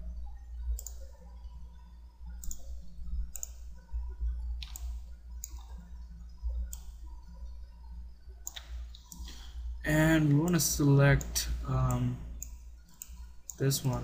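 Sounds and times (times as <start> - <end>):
steady low hum: 0.0 - 14.0
computer mouse clicks: 0.7 - 1.1, 2.3 - 3.8, 4.6 - 5.8, 6.6 - 7.2, 8.4 - 9.4, 10.2 - 14.0.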